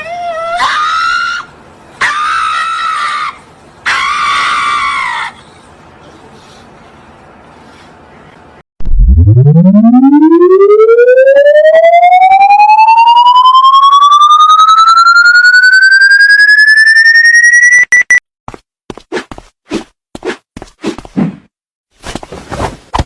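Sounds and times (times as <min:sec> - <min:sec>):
siren-like tone winding up: 0:08.8 - 0:18.2.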